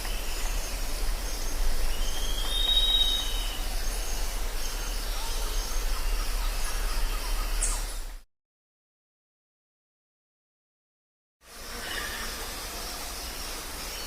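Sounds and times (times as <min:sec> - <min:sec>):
insects hissing: 0:00.0 - 0:07.9, 0:11.5 - 0:14.0.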